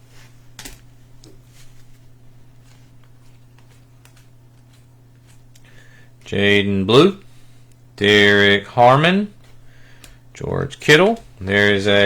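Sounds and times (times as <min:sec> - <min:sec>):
steady low hum: 0:00.0 - 0:12.0
cards clicking and rustling: 0:00.5 - 0:06.0.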